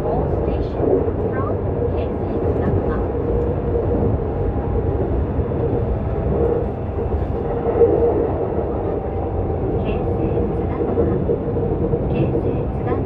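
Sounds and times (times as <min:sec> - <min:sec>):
train steady hum: 0:00.0 - 0:13.0
train wheels rumbling on rails: 0:00.0 - 0:13.0.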